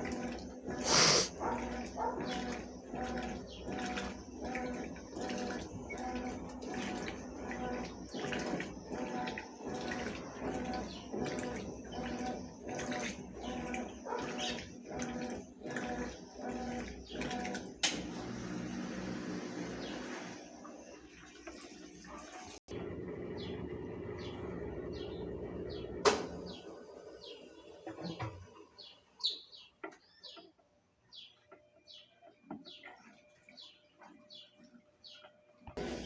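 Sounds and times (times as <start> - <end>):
water sloshing: 0.0 - 17.8
washing machine motor humming: 0.0 - 34.4, 35.0 - 36.0.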